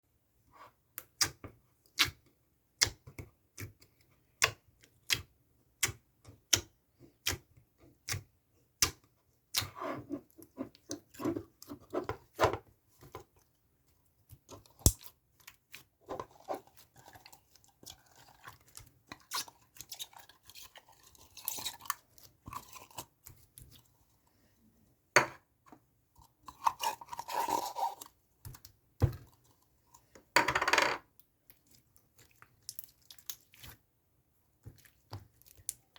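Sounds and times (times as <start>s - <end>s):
slime crunchy squishes: 31.4s - 33.9s.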